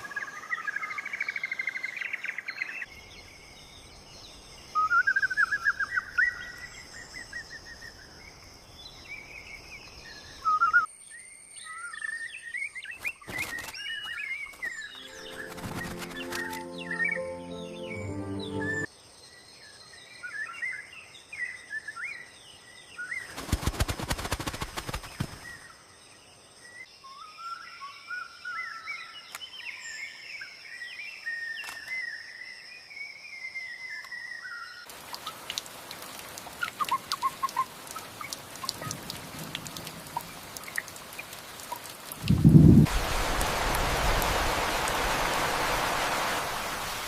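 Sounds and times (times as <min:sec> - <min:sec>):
rapid wing flapping: 0:13.0 - 0:16.7, 0:23.2 - 0:25.7
small birds chirping: 0:33.7 - 0:42.4.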